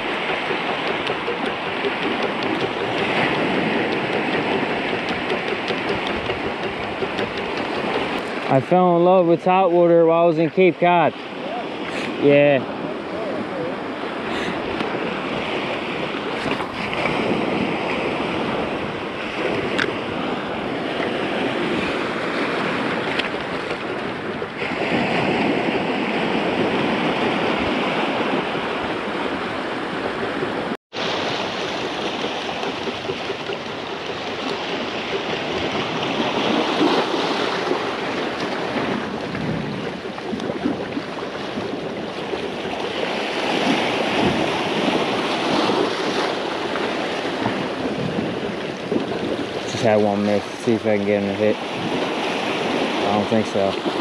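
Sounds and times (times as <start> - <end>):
small waves breaking on shore: 0.0 - 54.0
wind on microphone: 0.0 - 54.0.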